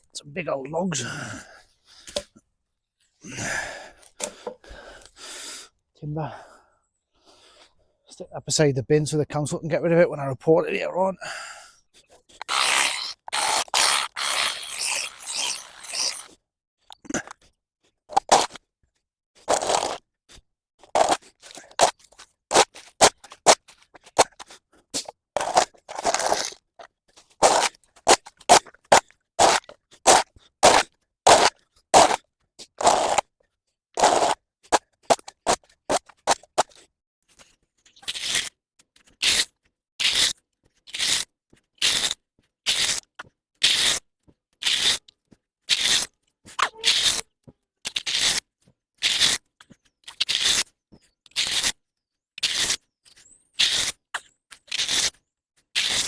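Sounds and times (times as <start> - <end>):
hand tool scraping path: 12.0 - 16.4, 29.4 - 33.3, 34.0 - 51.8, 52.4 - 56.0.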